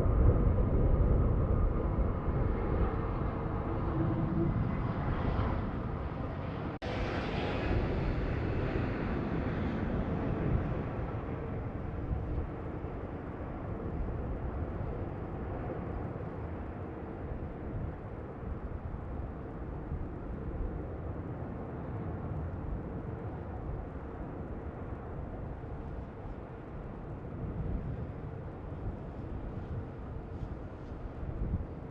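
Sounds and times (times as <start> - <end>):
jet engines passing: 0.0 - 18.4
wind rumbling on microphone: 0.0 - 31.9.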